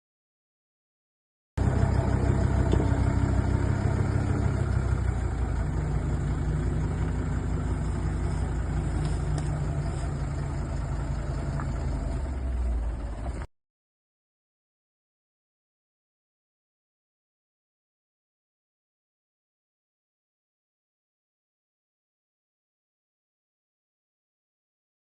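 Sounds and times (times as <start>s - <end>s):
heavy machine engine running: 1.6s - 13.5s.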